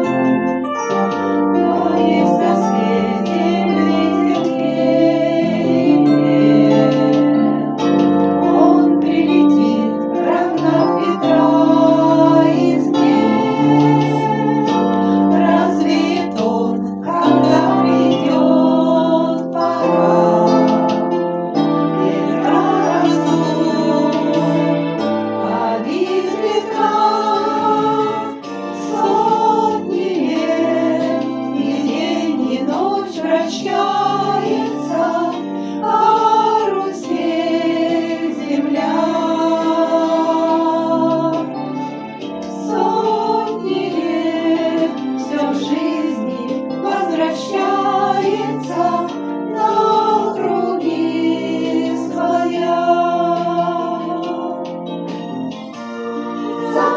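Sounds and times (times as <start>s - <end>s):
group of voices singing: 0.0s - 56.9s
sustained accompaniment: 0.0s - 56.9s.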